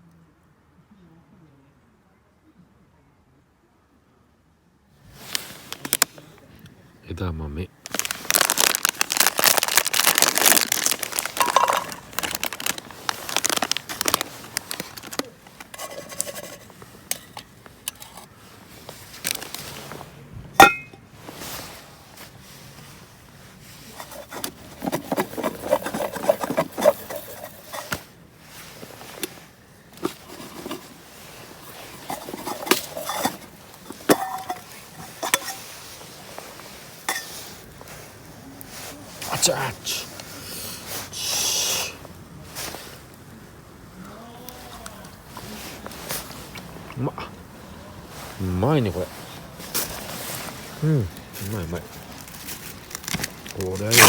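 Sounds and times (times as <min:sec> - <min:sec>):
plastic food packet crinkling: 0:07.8 - 0:16.9, 0:19.1 - 0:19.7, 0:24.0 - 0:28.0, 0:51.1 - 0:54.0
dishes and utensils clinking: 0:11.2 - 0:12.3, 0:20.6 - 0:21.0, 0:31.8 - 0:36.0, 0:37.0 - 0:37.5.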